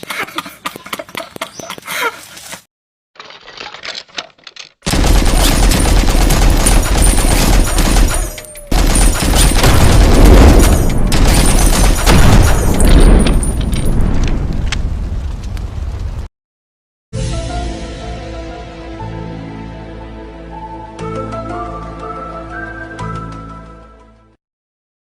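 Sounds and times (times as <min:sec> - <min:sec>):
rapid gunfire-like bursts: 0:04.9 - 0:12.9.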